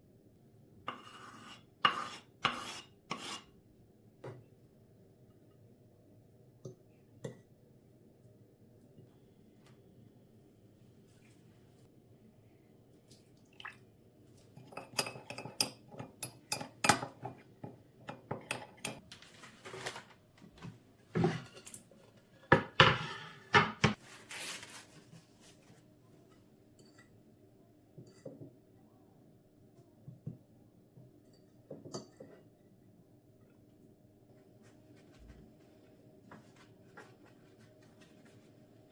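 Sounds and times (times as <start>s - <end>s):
dishes and cutlery clinking: 22.5s - 24.0s.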